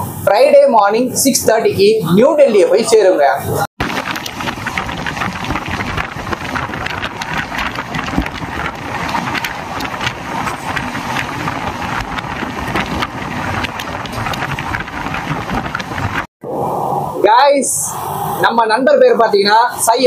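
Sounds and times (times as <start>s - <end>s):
sharp rattles and clicks: 3.8s - 16.3s
train wheels rumbling on rails: 4.2s - 16.3s.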